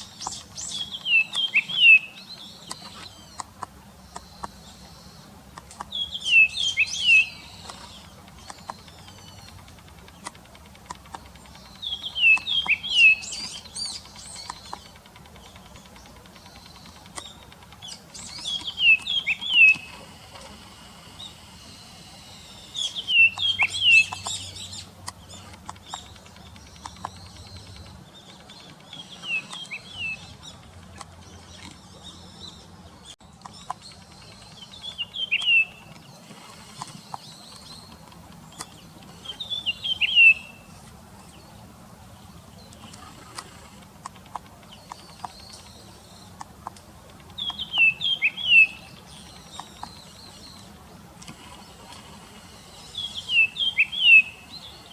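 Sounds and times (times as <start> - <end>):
bird chirping: 0.0 - 54.9.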